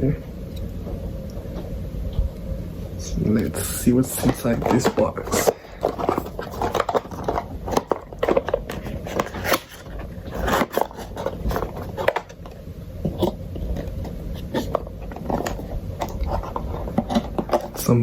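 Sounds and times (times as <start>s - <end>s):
paper inserts rustling: 3.4s - 18.0s
cardboard box being opened: 4.0s - 12.5s, 13.1s - 17.8s.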